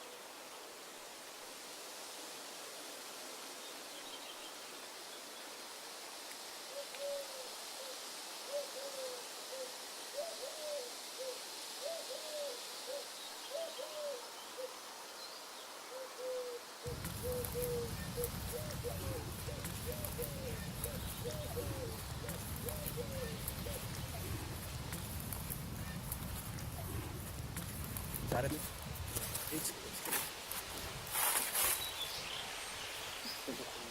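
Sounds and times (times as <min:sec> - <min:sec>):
steady high hiss: 0:00.0 - 0:33.9
bird hooting low notes: 0:15.9 - 0:29.2
crackling rustling noise: 0:16.8 - 0:33.2.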